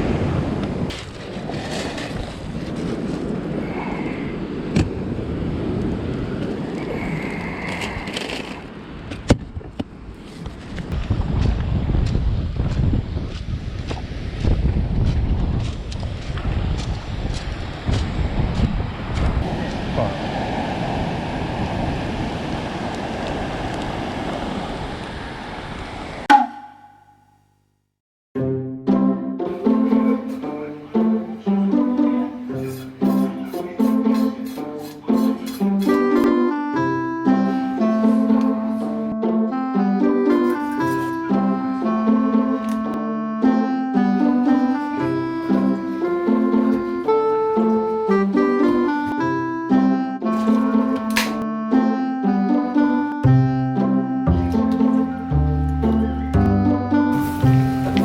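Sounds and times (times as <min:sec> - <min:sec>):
surf rushing on beach: 0:00.0 - 0:09.1, 0:17.1 - 0:26.3
wind buffeting microphone: 0:00.0 - 0:26.2
sharp ringing percussive hit: 0:26.3 - 0:27.4.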